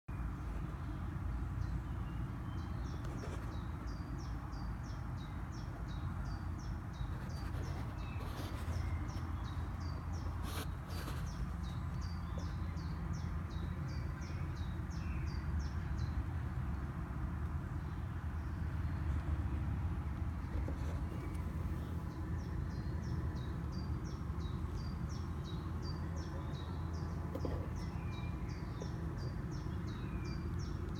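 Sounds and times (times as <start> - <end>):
bird chirping: 1.6 - 16.2, 20.4 - 30.9
rustling: 7.1 - 11.8.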